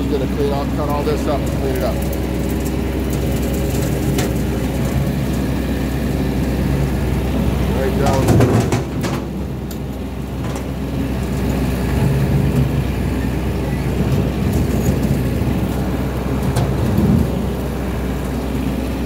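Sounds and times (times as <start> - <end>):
tractor engine running under load: 0.0 - 19.0.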